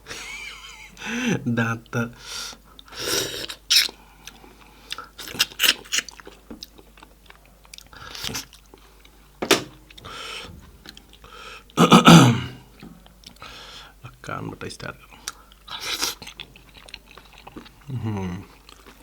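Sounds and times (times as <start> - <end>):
person chewing food: 2.7 - 9.2, 15.2 - 19.0.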